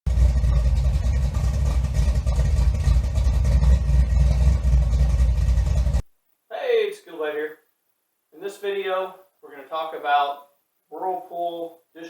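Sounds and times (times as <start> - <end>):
steady low rumble: 0.1 - 6.0.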